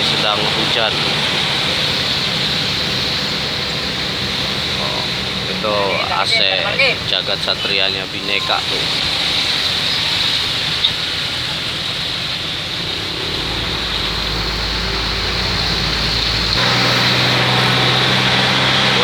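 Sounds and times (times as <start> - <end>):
bus engine and road noise: 0.0 - 19.0
deep rumble: 12.2 - 19.0.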